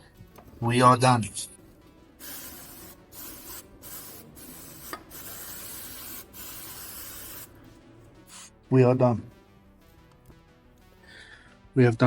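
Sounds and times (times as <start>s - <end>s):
aerosol spray hissing: 2.2s - 7.6s, 8.2s - 8.6s.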